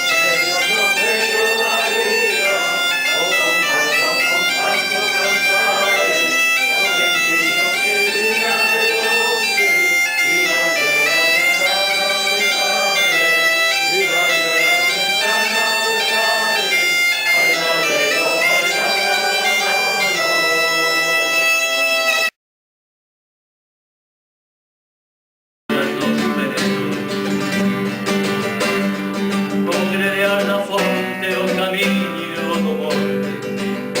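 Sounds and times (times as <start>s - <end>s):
bagpipes playing: 0.0s - 22.3s.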